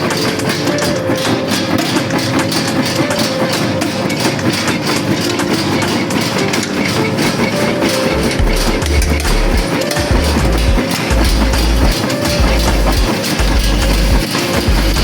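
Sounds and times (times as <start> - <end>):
dense continuous rattle: 0.0 - 15.0
machine motor tone: 0.0 - 15.0
deep bass beat: 8.2 - 15.0.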